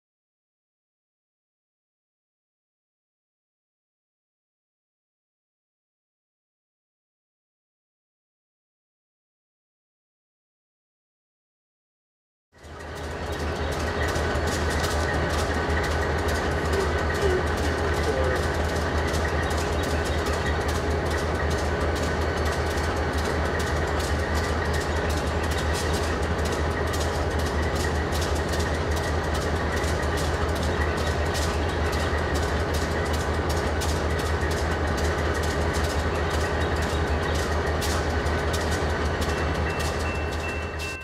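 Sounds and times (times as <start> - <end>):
locomotive engine drone: 12.6 - 41.0
wheels clicking over rails: 12.6 - 41.0.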